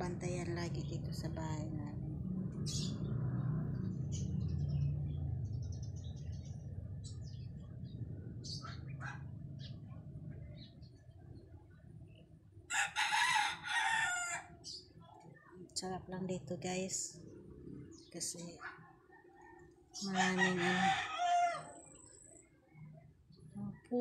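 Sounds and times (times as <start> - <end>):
low rumble: 0.0 - 12.6.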